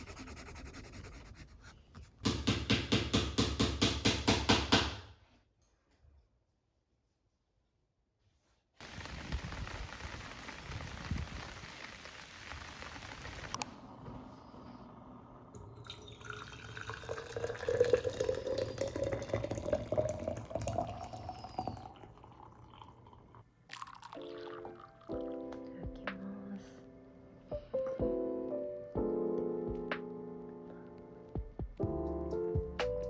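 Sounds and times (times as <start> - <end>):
water running in a rush: 8.8 - 13.6
liquid pouring into a container: 15.6 - 25.6.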